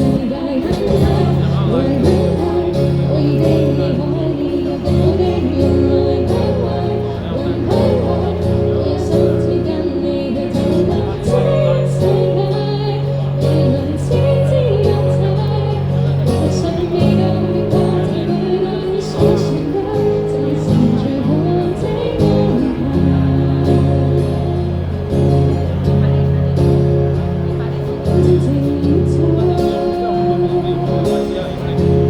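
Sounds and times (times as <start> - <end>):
person singing: 0.0 - 26.0, 27.8 - 32.0
live band playing: 10.3 - 32.0.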